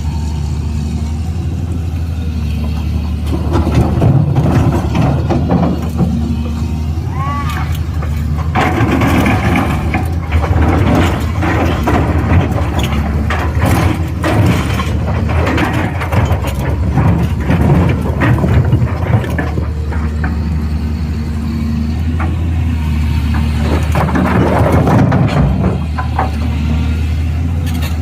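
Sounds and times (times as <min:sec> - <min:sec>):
diesel engine running: 0:00.0 - 0:28.0
machine clanks and knocks: 0:02.5 - 0:06.6, 0:07.5 - 0:20.7, 0:23.2 - 0:28.0.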